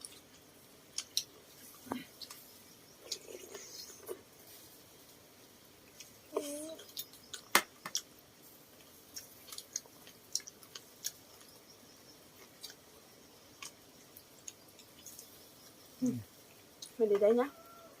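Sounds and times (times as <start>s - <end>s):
chewing smacks: 9.1s - 11.5s.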